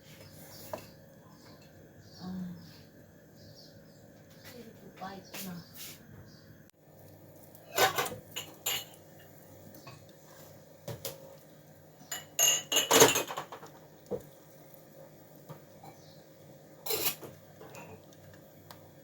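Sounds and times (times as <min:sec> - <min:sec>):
kitchenware clattering: 0:07.6 - 0:10.0, 0:12.0 - 0:14.2, 0:16.8 - 0:18.1.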